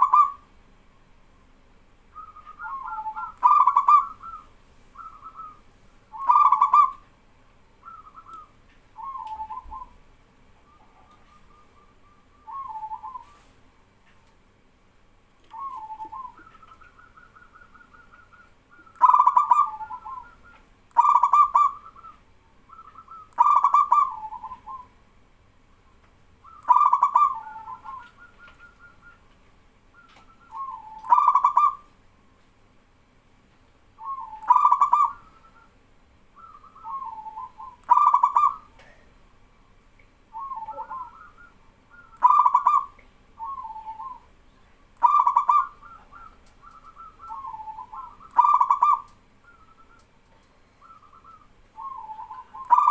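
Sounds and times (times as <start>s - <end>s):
doves cooing: 0.0s - 0.5s, 2.2s - 7.2s, 7.8s - 13.6s, 15.5s - 25.0s, 26.4s - 31.9s, 34.0s - 35.8s, 36.4s - 39.1s, 40.3s - 52.9s
softer dove coos: 0.0s - 0.5s, 2.2s - 7.1s, 7.8s - 10.0s, 10.6s - 13.6s, 15.4s - 25.0s, 26.4s - 29.3s, 30.0s - 31.9s, 34.0s - 35.8s, 36.4s - 39.1s, 40.3s - 52.9s.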